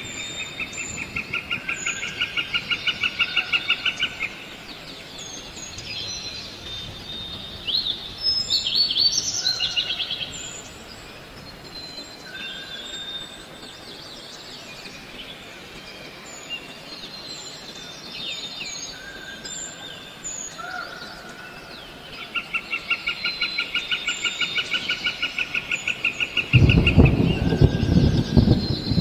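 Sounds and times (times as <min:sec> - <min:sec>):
birds chirping: 0:00.0 - 0:29.0
loud low rumble: 0:26.6 - 0:29.0.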